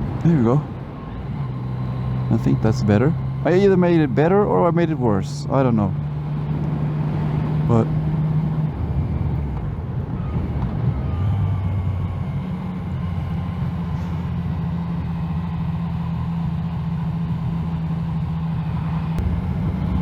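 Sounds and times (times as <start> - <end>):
wind rumble: 0.0 - 2.3, 18.5 - 20.0
motorcycle engine running: 0.0 - 9.6.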